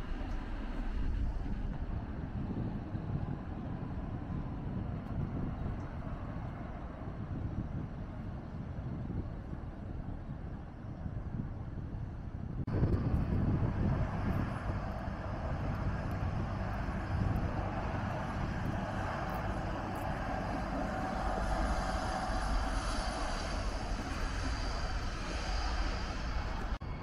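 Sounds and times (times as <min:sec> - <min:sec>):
train rumbling and rolling: 0:00.0 - 0:27.0
faint whine: 0:12.7 - 0:27.0.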